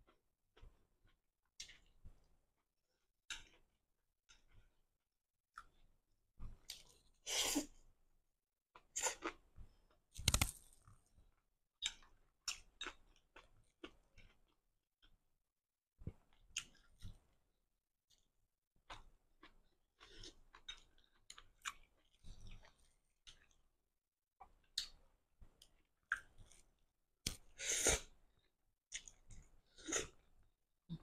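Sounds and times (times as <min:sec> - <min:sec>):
person chewing noodles: 0:11.8 - 0:14.6, 0:18.8 - 0:23.6, 0:27.3 - 0:30.4.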